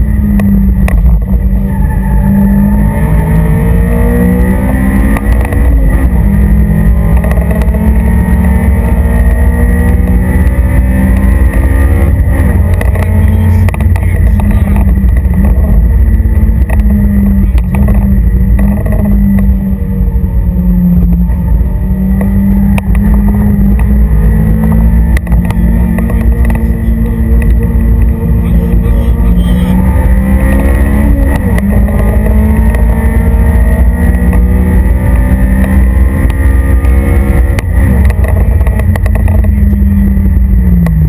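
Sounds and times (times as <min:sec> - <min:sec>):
car engine revving under load: 0:00.0 - 0:41.0.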